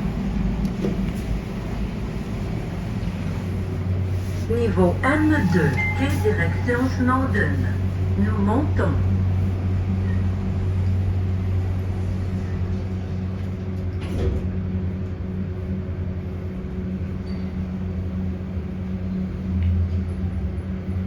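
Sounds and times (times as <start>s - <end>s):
elevator drive humming: 0.0s - 21.0s.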